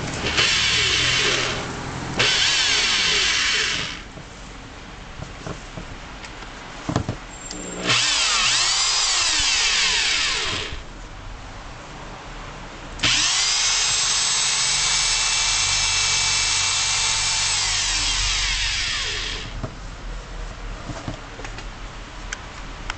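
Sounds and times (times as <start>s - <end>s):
hammer drill motor whining: 0.2s - 4.1s, 7.5s - 10.8s, 13.0s - 19.6s.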